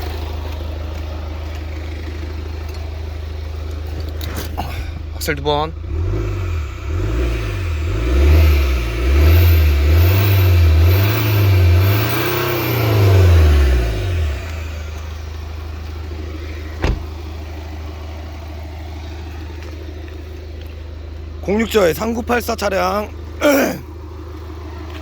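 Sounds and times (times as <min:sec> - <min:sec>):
diesel engine revving and idling: 0:00.0 - 0:25.0.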